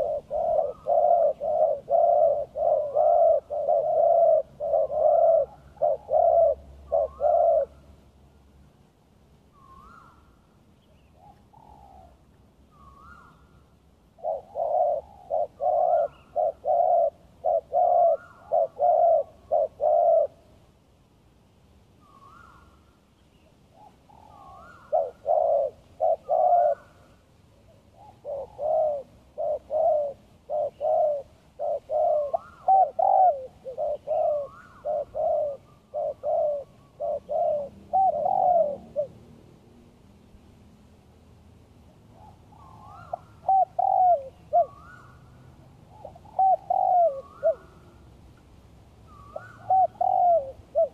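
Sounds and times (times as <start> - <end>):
doves cooing: 0.0 - 7.9, 14.1 - 20.5, 23.7 - 39.3, 42.1 - 48.1, 49.1 - 50.9.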